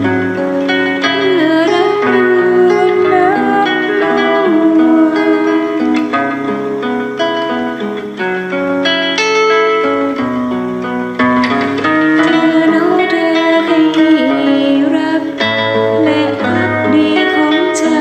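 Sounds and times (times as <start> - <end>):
person singing: 0.0 - 6.7, 12.0 - 18.0
fingerstyle acoustic guitar: 0.0 - 18.0.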